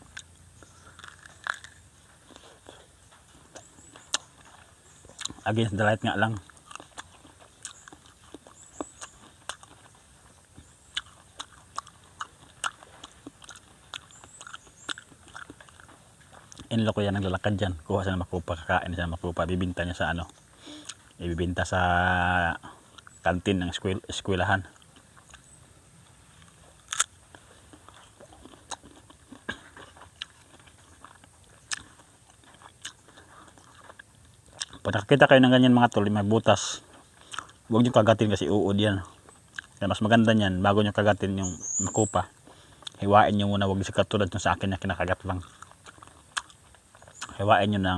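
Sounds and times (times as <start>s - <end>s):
wet mouth clicks: 0.0s - 2.8s, 3.5s - 5.5s, 20.2s - 21.2s, 37.2s - 37.6s
crunchy chewing: 0.0s - 47.9s.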